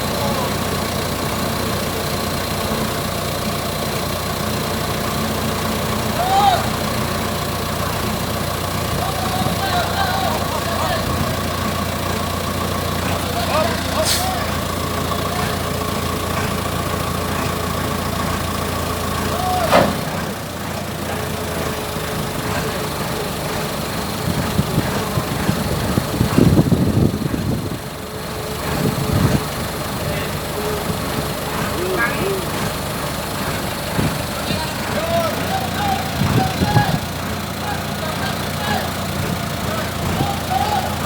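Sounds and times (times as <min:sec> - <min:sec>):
forklift engine idling: 0:00.0 - 0:41.0
sharp clunk: 0:19.7 - 0:20.2.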